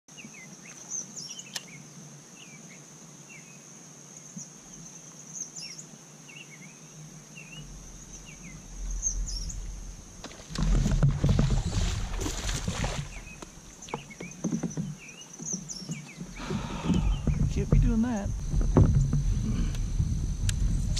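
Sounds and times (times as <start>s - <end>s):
birds chirping: 0.1s - 20.1s
low rumbling with knocks: 7.6s - 20.9s.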